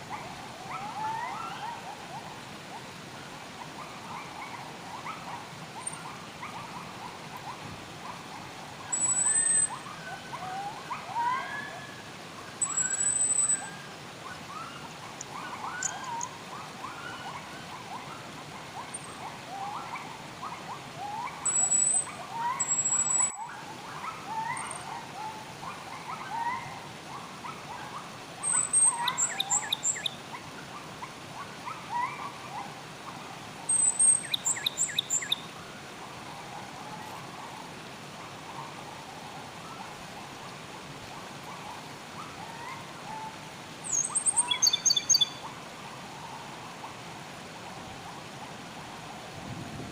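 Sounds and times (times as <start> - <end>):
wild birds chirping: 0.0 - 49.6
flowing water: 0.0 - 49.9
bird trill: 8.9 - 9.8, 12.6 - 13.7, 15.7 - 16.3, 21.4 - 23.4, 28.4 - 30.1, 33.7 - 35.4, 43.9 - 45.4
high thin bird whistles: 12.6 - 13.7.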